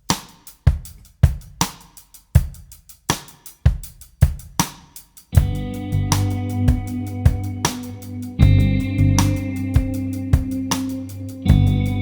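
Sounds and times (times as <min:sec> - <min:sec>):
drum kit beat: 0:00.0 - 0:12.0.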